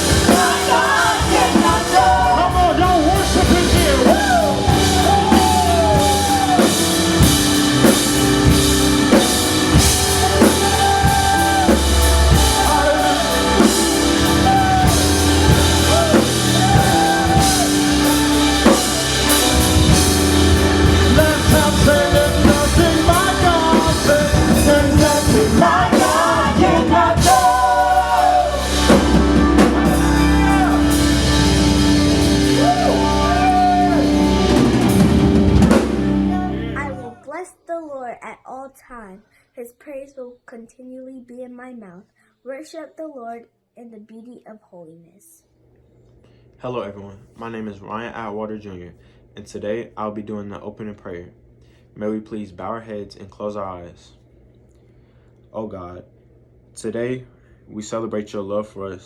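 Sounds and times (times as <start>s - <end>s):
drum kit beat: 0.0s - 37.2s
gospel band playing: 0.0s - 37.2s
singers wordless vocal runs: 0.0s - 37.2s.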